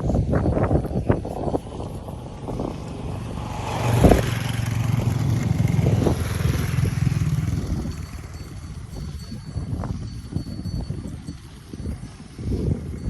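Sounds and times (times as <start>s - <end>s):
vehicle engine passing by: 1.3s - 9.1s.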